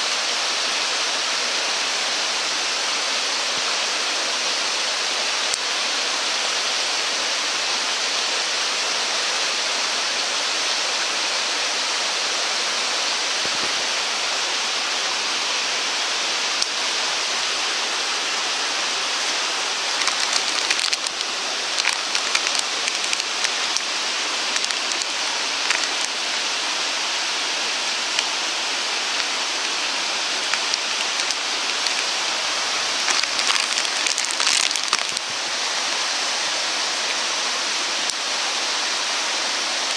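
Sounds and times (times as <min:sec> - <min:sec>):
light crackles and ticks: 0:19.9 - 0:23.9, 0:24.5 - 0:26.2, 0:30.4 - 0:32.2, 0:33.0 - 0:35.2.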